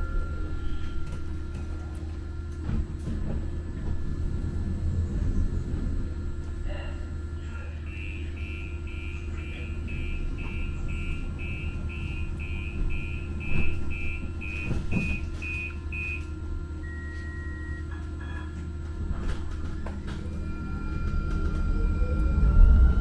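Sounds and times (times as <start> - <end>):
light-rail train rumble: 0.0 - 23.0
electronic warning beeps: 7.8 - 18.6, 20.4 - 23.0.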